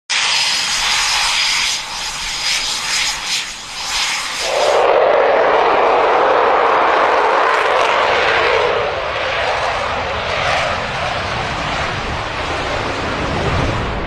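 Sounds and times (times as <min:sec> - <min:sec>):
faint high whine: 0:00.1 - 0:07.5
aircraft turbine engine rush: 0:00.1 - 0:14.0.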